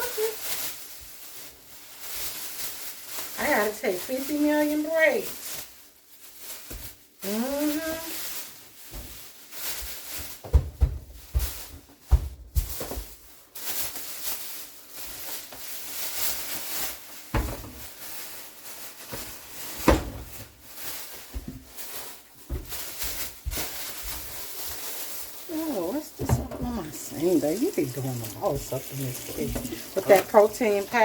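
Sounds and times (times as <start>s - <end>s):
groceries rustling and clattering: 0.0s - 31.0s
cupboard doors opening and closing: 26.1s - 27.0s.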